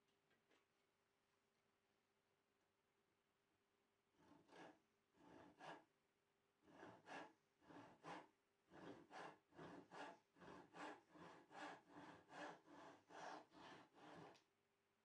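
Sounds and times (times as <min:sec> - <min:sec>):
hand saw cutting wood: 0:04.2 - 0:05.9, 0:06.7 - 0:14.4.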